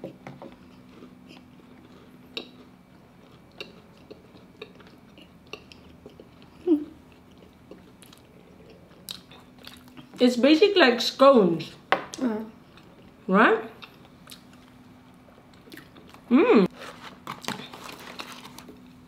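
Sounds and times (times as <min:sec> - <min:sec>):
chewing soft food: 0:00.0 - 0:10.2, 0:13.8 - 0:16.3
person humming: 0:16.3 - 0:16.7.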